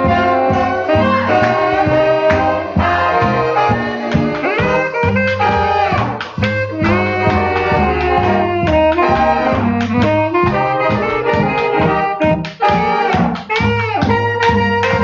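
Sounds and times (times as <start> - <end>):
big-band swing jazz: 0.0 - 15.0.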